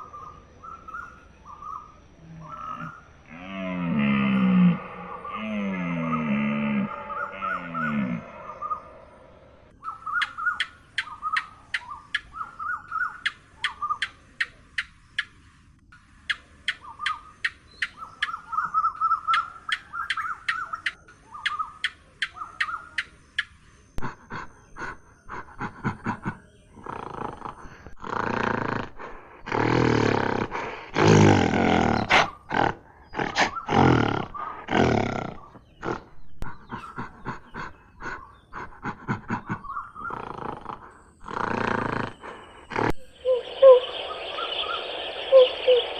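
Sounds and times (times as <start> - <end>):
big cat roaring and growling: 2.2 - 9.3, 25.4 - 43.3
short chirping calls: 6.0 - 45.9.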